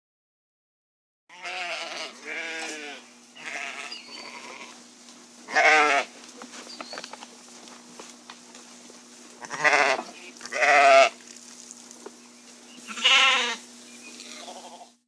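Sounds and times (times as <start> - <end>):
sheep bleating: 1.3 - 4.8, 5.5 - 6.1, 9.4 - 11.2, 12.8 - 13.6, 14.2 - 15.0.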